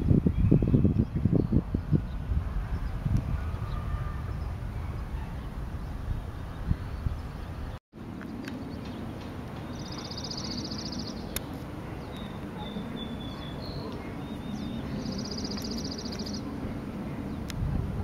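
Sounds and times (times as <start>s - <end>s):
songbird trilling: 9.6s - 16.5s.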